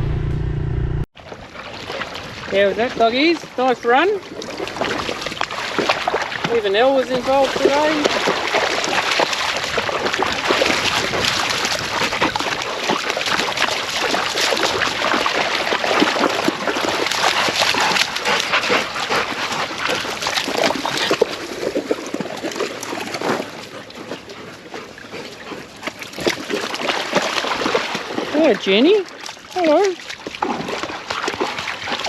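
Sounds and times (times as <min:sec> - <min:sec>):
dogs splashing through water: 0:01.2 - 0:32.0
dog vocal sounds: 0:07.3 - 0:28.4.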